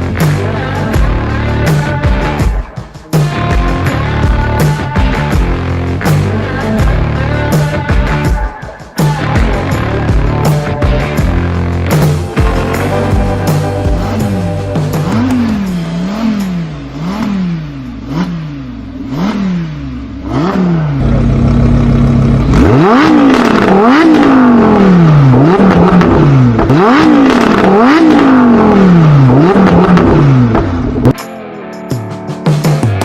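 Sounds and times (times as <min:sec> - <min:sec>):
sports car engine revving: 0:11.2 - 0:31.1.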